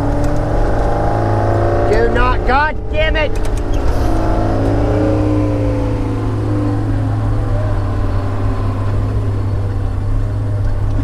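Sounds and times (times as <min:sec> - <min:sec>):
heavy diesel engine running: 0:00.0 - 0:11.0
whine sliding down in pitch: 0:03.6 - 0:10.9.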